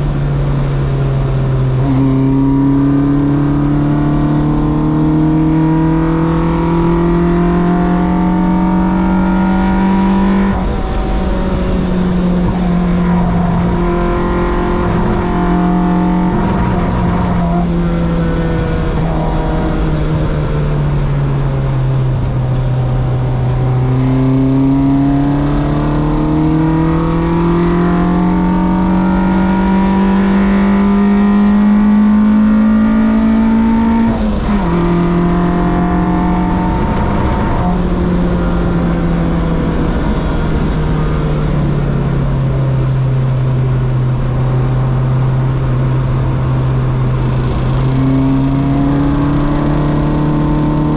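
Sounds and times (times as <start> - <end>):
race car engine revving: 0.0 - 50.9.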